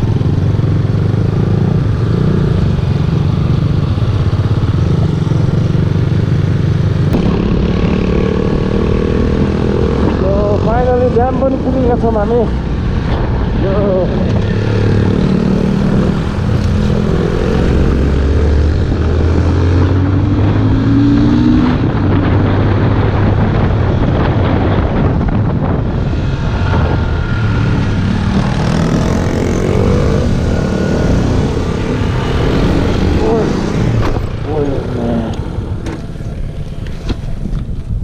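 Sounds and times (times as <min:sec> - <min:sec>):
motorcycle engine revving: 0:00.0 - 0:37.5.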